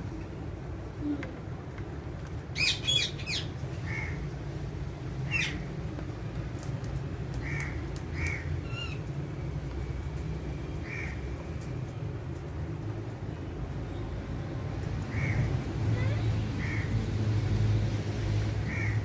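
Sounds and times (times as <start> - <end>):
parakeets squawking: 2.6 - 4.2.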